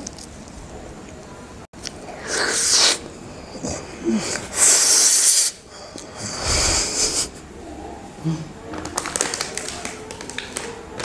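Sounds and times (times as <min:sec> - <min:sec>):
loud breathy hisses: 0:04.0 - 0:07.4.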